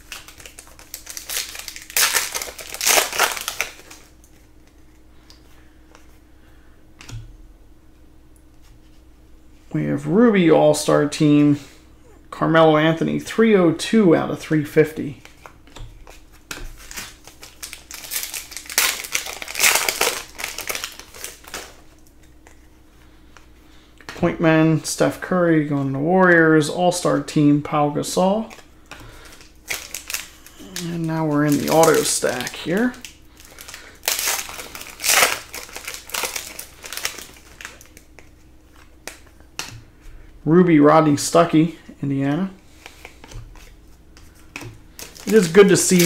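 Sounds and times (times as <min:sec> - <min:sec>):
wrapper crinkling and crumpling: 0:00.0 - 0:04.9, 0:16.7 - 0:22.5, 0:29.2 - 0:39.4, 0:44.9 - 0:46.0.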